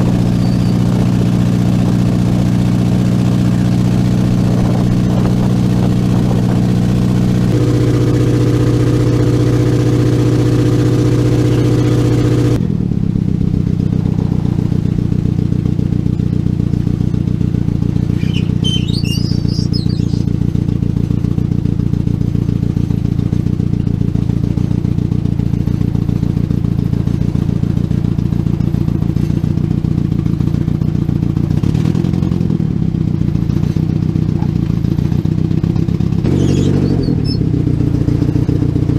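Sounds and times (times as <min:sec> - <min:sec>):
boat engine running: 0:00.0 - 0:21.4, 0:33.8 - 0:38.9.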